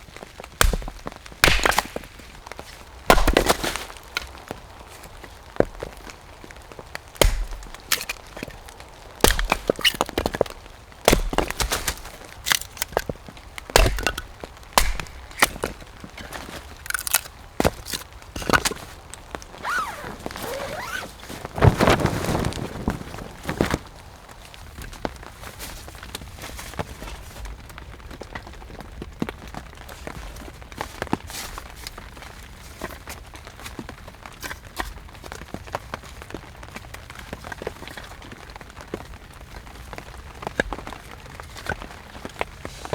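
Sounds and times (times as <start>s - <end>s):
firewood cracking and snapping: 0.0s - 25.3s.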